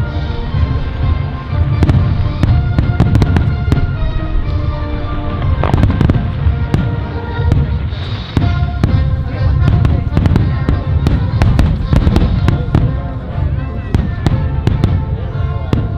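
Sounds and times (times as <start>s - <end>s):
fireworks rumbling and crackling: 0.0s - 15.9s
music with held notes: 0.0s - 15.9s.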